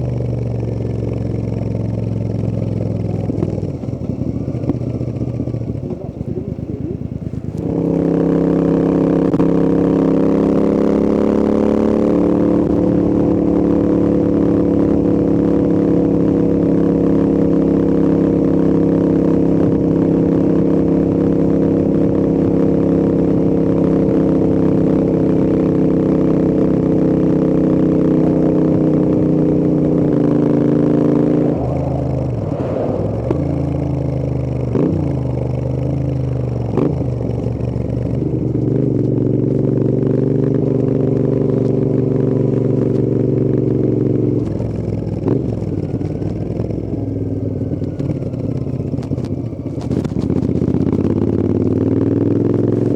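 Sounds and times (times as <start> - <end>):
motorcycle engine cruising: 0.0 - 52.9
exhaust pops on the overrun: 47.7 - 51.2.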